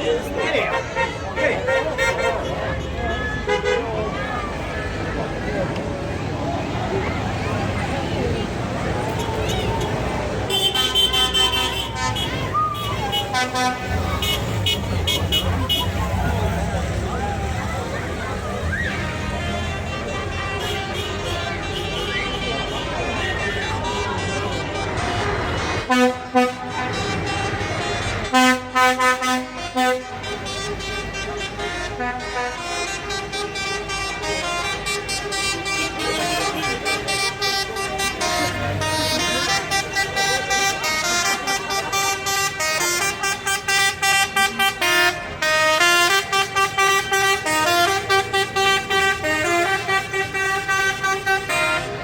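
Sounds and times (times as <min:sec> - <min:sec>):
reedy horn-like instrument tune: 0:09.1 - 0:52.0.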